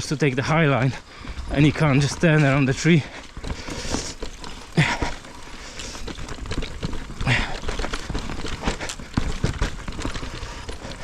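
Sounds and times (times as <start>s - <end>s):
mountain bike rattling over roots: 1.5s - 11.0s
rider grunting: 3.5s - 11.0s.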